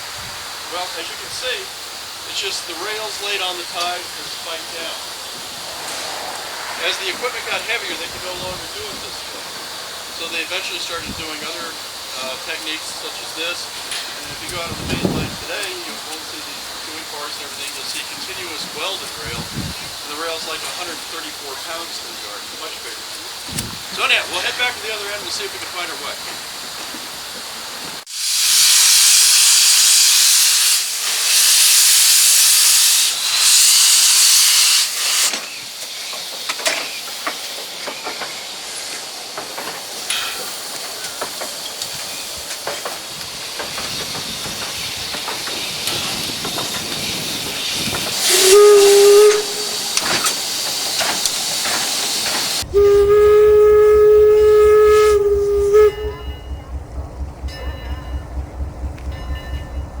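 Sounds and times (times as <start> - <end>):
steam locomotive venting steam: 0.0 - 60.0
train wheels clicking: 0.8 - 60.0
steam whistle blasts: 48.2 - 50.4, 52.6 - 56.8.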